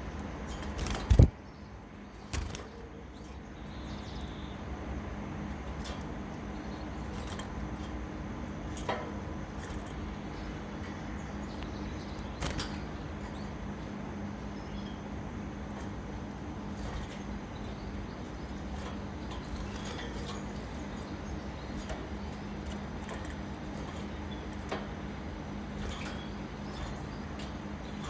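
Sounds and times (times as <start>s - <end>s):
caged bird chirp: 0.0s - 28.0s
steady low hum: 0.0s - 28.0s.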